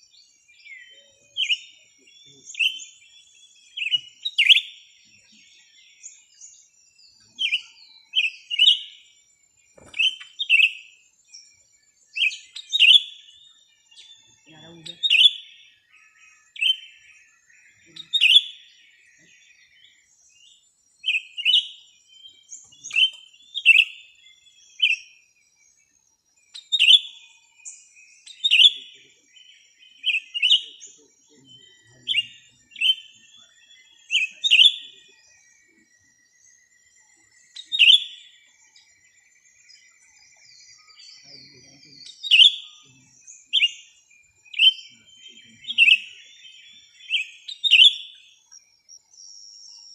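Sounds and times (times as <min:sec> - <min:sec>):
small birds chirping: 0:00.0 - 0:49.9
faint high steady tone: 0:13.3 - 0:15.0, 0:15.7 - 0:47.5.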